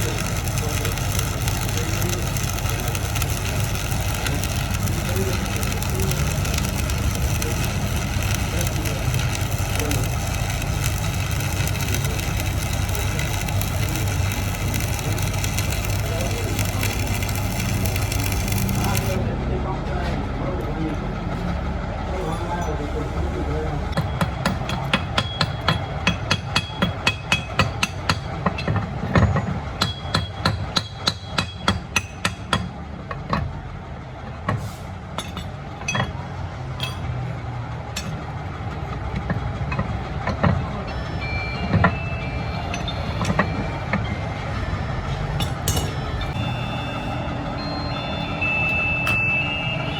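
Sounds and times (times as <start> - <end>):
rough crackling noise: 0.0 - 19.2
machinery low hum: 0.0 - 24.0, 40.7 - 49.9
hammer on metal: 24.0 - 33.5.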